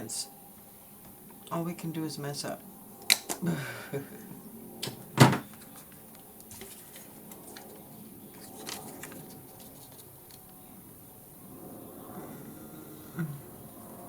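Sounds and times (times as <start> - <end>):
soft rustle: 5.6 - 10.6.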